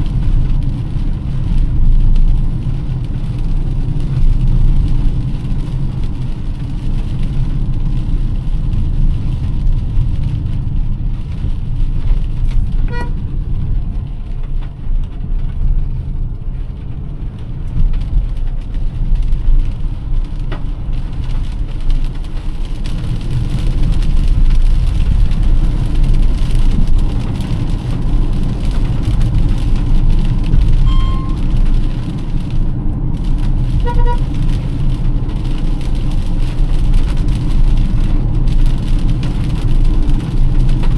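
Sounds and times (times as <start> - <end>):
car driving on wet road: 0.0 - 40.9
rain hissing: 0.0 - 40.9
car horn beeps: 12.9 - 13.2, 30.8 - 31.4, 33.8 - 34.2.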